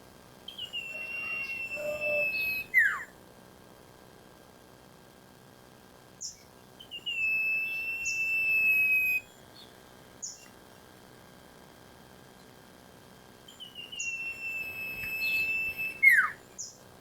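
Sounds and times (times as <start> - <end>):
bird chirping and whistling: 0.5 - 3.0, 6.9 - 9.2, 13.6 - 16.7.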